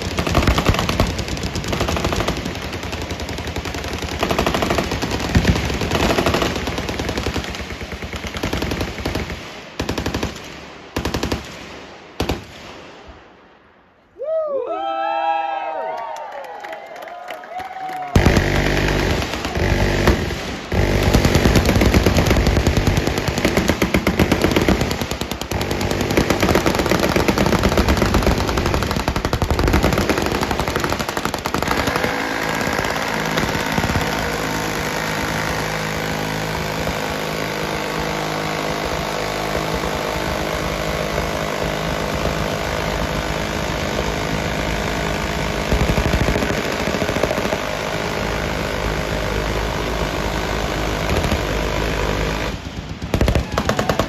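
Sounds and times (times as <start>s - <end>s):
automatic machine gun fire: 0.0s - 12.9s, 18.1s - 54.0s.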